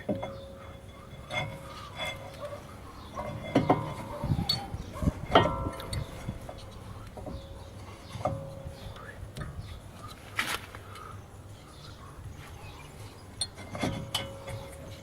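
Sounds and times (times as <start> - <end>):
metal tools clinking: 0.0 - 7.4.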